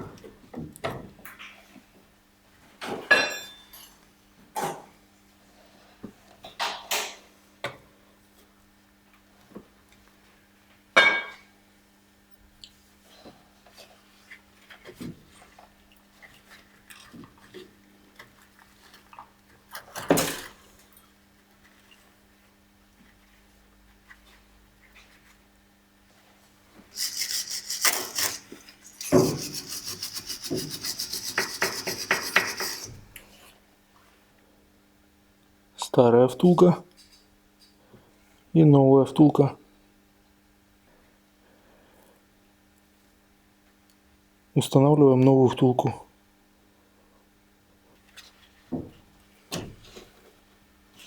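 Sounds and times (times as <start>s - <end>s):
metal clank with ring: 3.1s - 4.0s
rubber rasping against metal: 26.9s - 33.0s.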